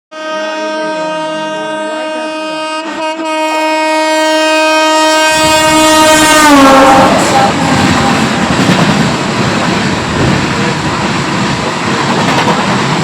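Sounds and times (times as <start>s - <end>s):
train horn blast: 0.1s - 8.6s
approaching train rumble: 1.1s - 13.0s.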